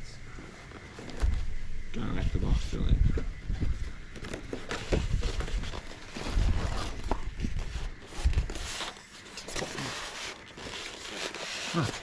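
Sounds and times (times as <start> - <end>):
cardboard box being handled: 3.6 - 12.0.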